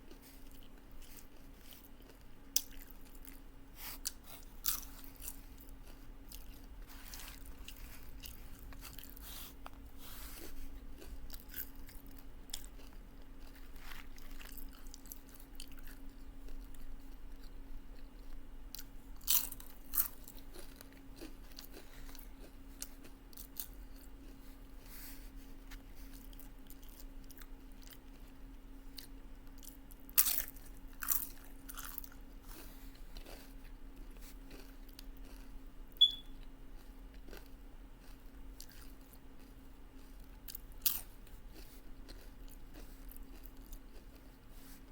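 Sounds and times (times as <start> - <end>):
close chewing with mouth noises: 0.0 - 44.9
faint steady hum: 0.0 - 44.9
chips crunching: 4.0 - 16.8, 18.8 - 24.1, 29.0 - 35.5, 40.0 - 44.3.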